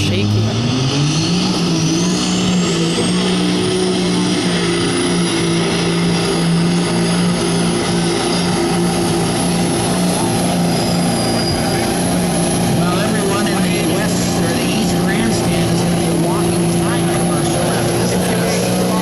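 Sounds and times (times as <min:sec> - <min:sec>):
diesel truck engine at full throttle: 0:00.0 - 0:19.0.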